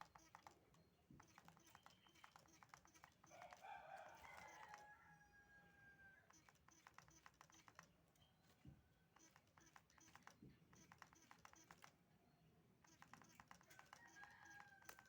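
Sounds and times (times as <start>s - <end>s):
faint rooster crowing: 3.2s - 6.4s, 13.6s - 15.0s.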